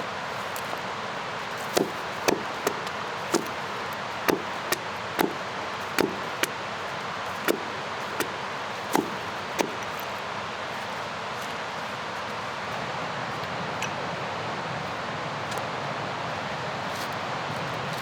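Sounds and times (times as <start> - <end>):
wood being chopped: 1.5 - 10.2.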